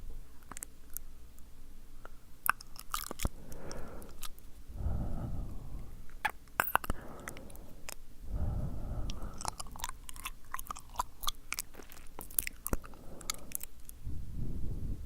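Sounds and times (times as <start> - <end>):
tongue and lip clicks: 2.0 - 4.5, 6.1 - 8.0, 9.0 - 14.0
soft breathy rushes: 3.3 - 6.2, 6.8 - 9.9, 12.8 - 15.0.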